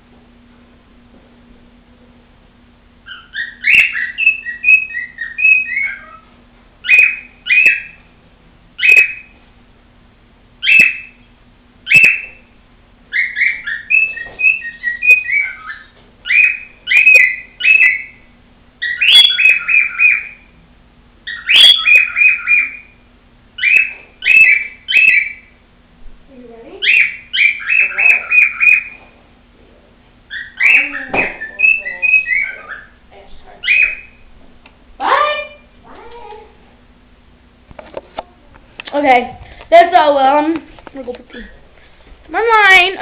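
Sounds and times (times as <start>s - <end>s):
cockatiel whistling and chirping: 3.0s - 8.0s, 8.8s - 9.3s, 10.6s - 11.2s, 11.8s - 12.4s, 13.1s - 18.2s, 18.8s - 20.5s, 21.2s - 23.0s, 23.6s - 25.5s, 26.8s - 29.0s, 30.3s - 33.0s, 33.6s - 34.2s.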